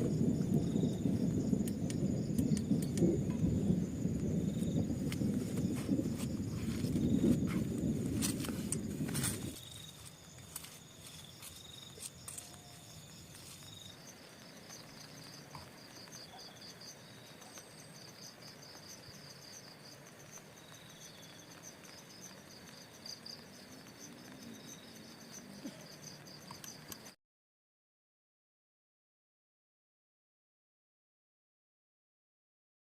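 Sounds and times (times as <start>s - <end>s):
insects chirping: 0.0s - 27.2s
small clicks: 26.4s - 27.2s.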